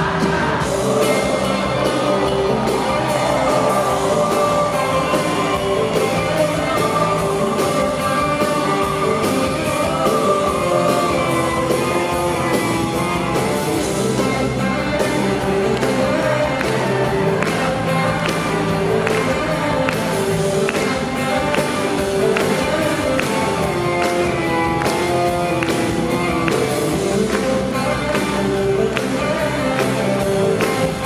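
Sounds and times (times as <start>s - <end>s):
woman singing: 0.0s - 12.0s
live pop rock band: 0.0s - 31.0s
steady drum beat: 0.0s - 31.0s.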